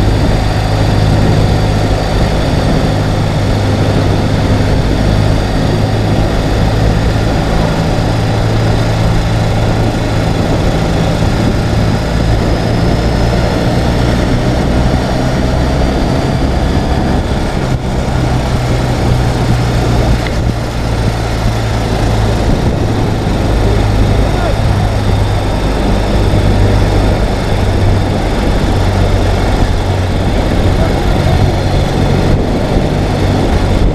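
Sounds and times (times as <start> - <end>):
motorcycle engine running: 0.0 - 33.9
wind rushing over microphone: 0.0 - 33.9.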